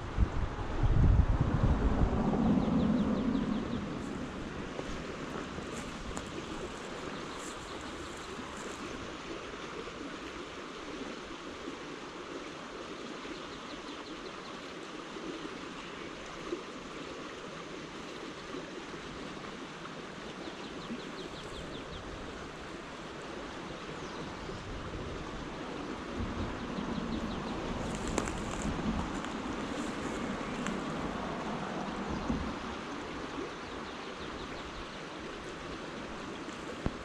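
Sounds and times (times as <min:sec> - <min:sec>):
stream flowing: 0:00.0 - 0:37.0.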